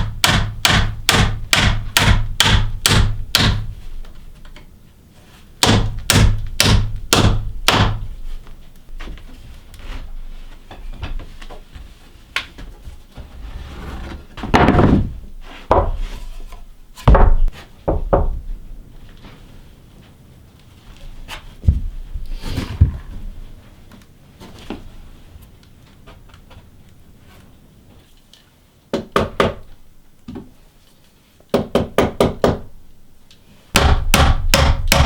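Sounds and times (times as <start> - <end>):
wooden boards knocking: 14.4 - 16.1, 17.0 - 18.5.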